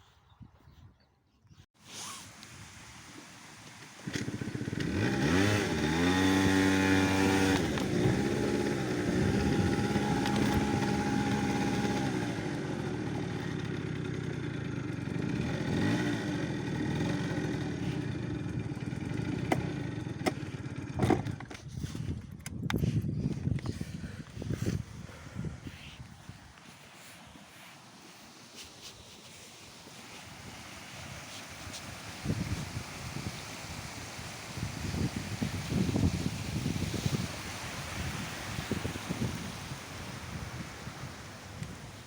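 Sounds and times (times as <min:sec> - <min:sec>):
engine revving: 0:03.8 - 0:21.1.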